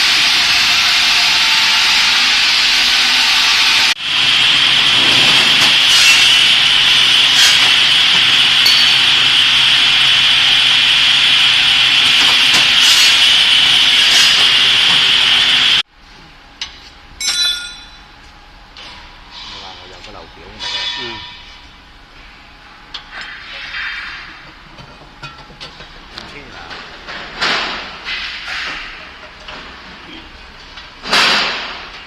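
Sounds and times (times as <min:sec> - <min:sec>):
saw machine cutting wood: 0:00.0 - 0:15.8
short metallic ring: 0:08.6 - 0:09.1, 0:17.2 - 0:18.1.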